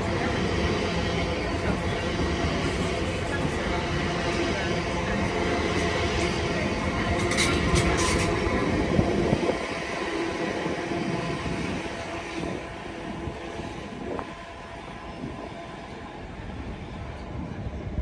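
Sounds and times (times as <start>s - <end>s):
wheels on rails: 0.0s - 12.7s
electric train hum: 0.0s - 18.0s.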